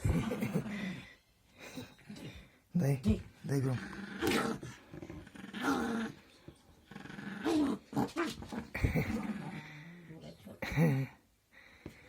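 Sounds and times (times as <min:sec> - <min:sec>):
dog growling: 0:03.5 - 0:10.7.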